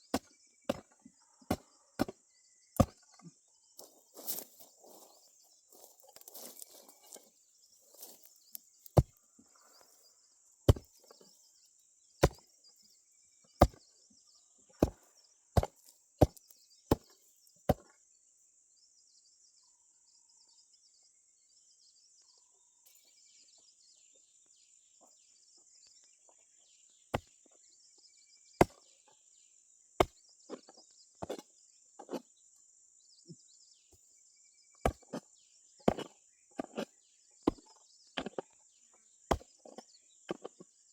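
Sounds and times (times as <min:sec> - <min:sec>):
hand tool chopping into soil: 0:00.0 - 0:02.2, 0:02.8 - 0:03.1, 0:08.0 - 0:09.2, 0:10.6 - 0:11.3, 0:12.2 - 0:12.5, 0:13.5 - 0:13.9, 0:14.8 - 0:17.9, 0:27.1 - 0:27.4, 0:28.6 - 0:28.9, 0:30.0 - 0:32.3, 0:34.8 - 0:38.5, 0:39.3 - 0:40.6.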